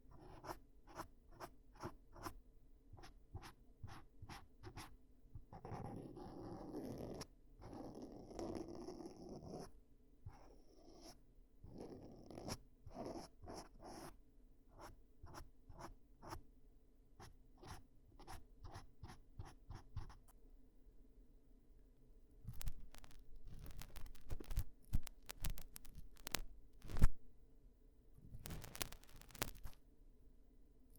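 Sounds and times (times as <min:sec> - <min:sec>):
ear cleaning rustling and scraping: 0:22.5 - 0:27.2, 0:28.4 - 0:29.8
light scratches or taps: 0:22.5 - 0:27.2, 0:28.3 - 0:29.8.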